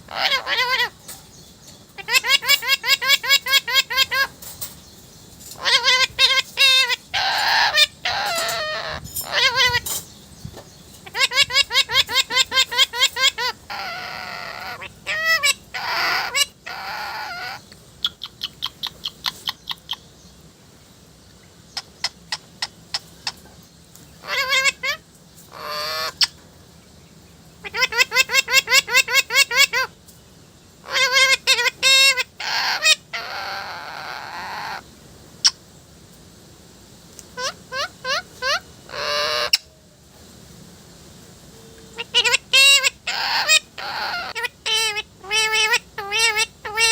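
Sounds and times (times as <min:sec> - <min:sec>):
parrot squawking: 0:00.0 - 0:01.0, 0:02.0 - 0:04.4, 0:05.5 - 0:10.0, 0:11.0 - 0:20.0, 0:24.2 - 0:26.3, 0:27.6 - 0:29.9, 0:30.8 - 0:34.8, 0:37.4 - 0:39.7, 0:42.0 - 0:46.9
parrot calling: 0:00.0 - 0:01.2, 0:01.9 - 0:04.8, 0:05.5 - 0:10.1, 0:11.0 - 0:20.1, 0:24.2 - 0:26.4, 0:27.6 - 0:30.0, 0:30.8 - 0:35.6, 0:37.3 - 0:39.7, 0:41.9 - 0:46.9.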